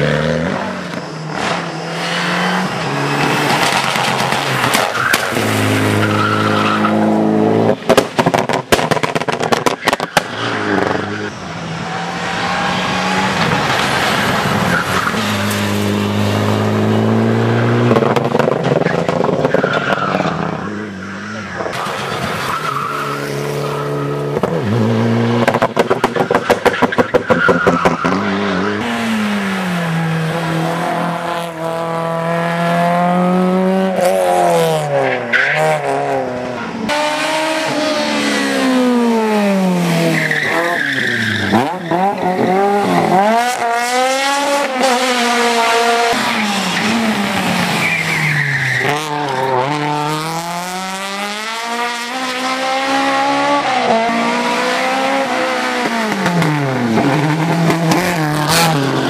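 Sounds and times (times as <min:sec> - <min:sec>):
rally car engine at full throttle: 0:00.0 - 0:59.0
exhaust pops: 0:07.8 - 0:11.0
tyres squealing: 0:40.0 - 0:43.0.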